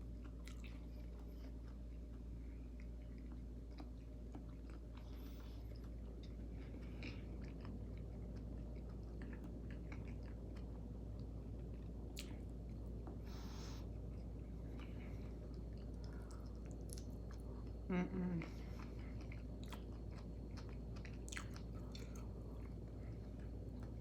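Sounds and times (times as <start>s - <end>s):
close chewing with mouth smacks: 0.0s - 24.0s
steady low hum: 0.0s - 24.0s.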